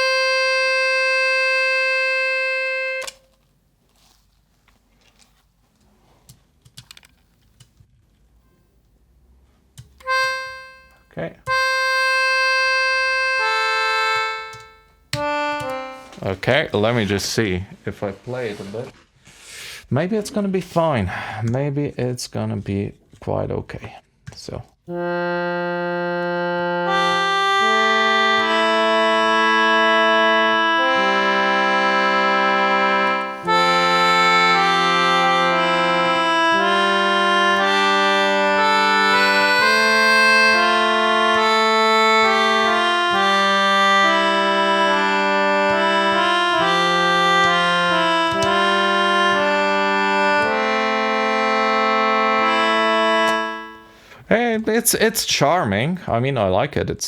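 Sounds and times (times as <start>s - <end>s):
concertina chords: 0.0s - 3.2s, 10.0s - 16.7s, 24.9s - 54.2s.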